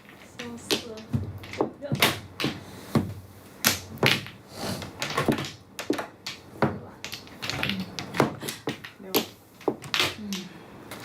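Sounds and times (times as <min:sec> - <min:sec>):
mahjong tiles clacking: 0:00.0 - 0:11.0.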